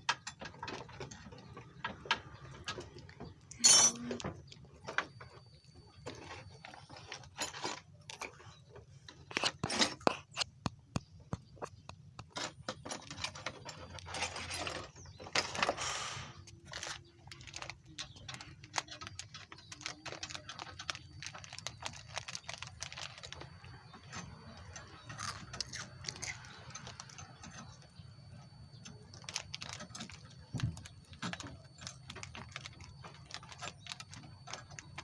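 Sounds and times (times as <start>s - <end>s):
hand tools clinking on metal parts: 3.5s - 4.3s, 12.3s - 15.7s.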